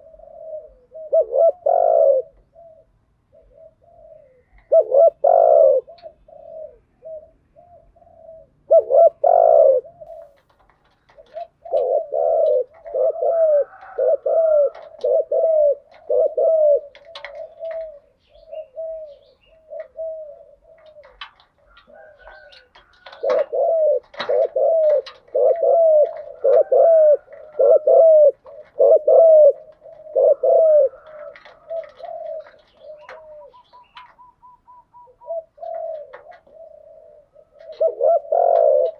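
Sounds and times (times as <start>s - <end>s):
doves cooing: 0.0s - 38.9s.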